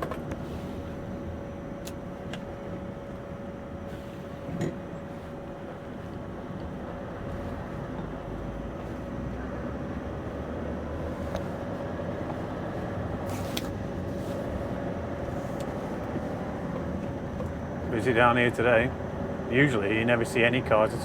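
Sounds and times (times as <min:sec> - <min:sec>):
diesel truck engine running: 0:00.0 - 0:21.0
road noise: 0:05.8 - 0:21.0.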